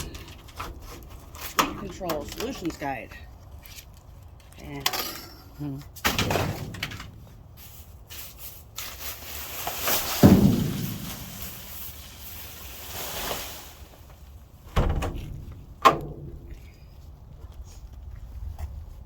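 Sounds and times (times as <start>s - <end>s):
trash rustling and scraping: 0.0s - 16.8s
heavy thump: 10.1s - 11.6s, 14.7s - 16.6s.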